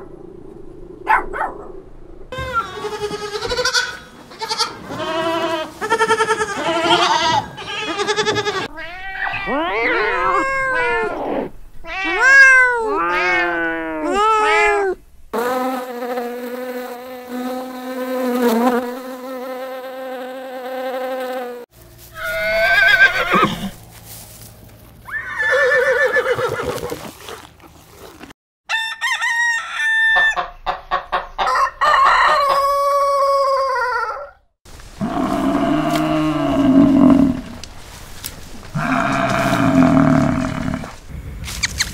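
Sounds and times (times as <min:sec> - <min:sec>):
kittens meowing: 0:06.2 - 0:15.0
rooster crowing: 0:28.7 - 0:30.6, 0:31.4 - 0:34.4
chickens clucking: 0:30.3 - 0:34.2.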